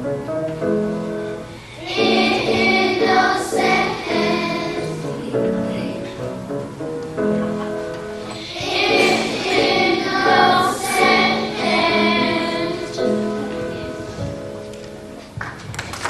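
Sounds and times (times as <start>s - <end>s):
children's choir singing: 1.6s - 6.3s, 8.3s - 14.3s.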